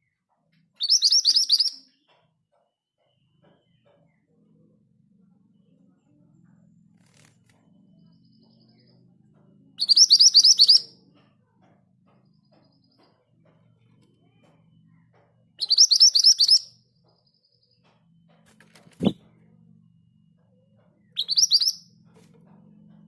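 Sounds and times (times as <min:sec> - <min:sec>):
bird singing rapid trills: 0:00.8 - 0:02.1, 0:09.8 - 0:11.1, 0:15.6 - 0:18.3, 0:18.9 - 0:19.2, 0:20.2 - 0:22.0.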